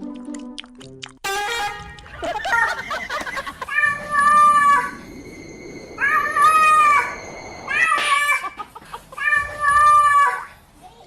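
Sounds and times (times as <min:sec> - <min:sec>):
cat meowing loudly: 0:03.6 - 0:05.0.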